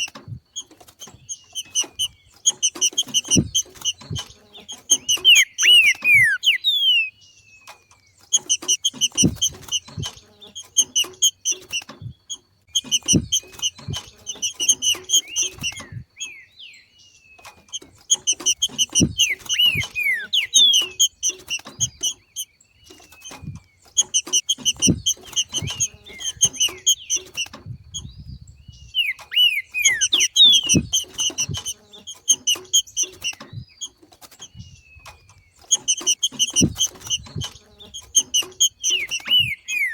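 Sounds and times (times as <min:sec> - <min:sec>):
bird chattering and whistling: 0:00.0 - 0:16.9, 0:17.5 - 0:39.9
faint low knocks: 0:08.5 - 0:16.1.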